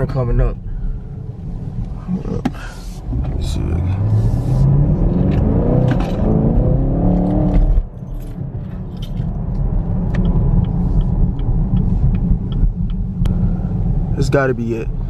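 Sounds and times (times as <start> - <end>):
low engine rumble: 0.0 - 15.0
car engine accelerating: 1.1 - 15.0
light ticks: 10.0 - 13.3.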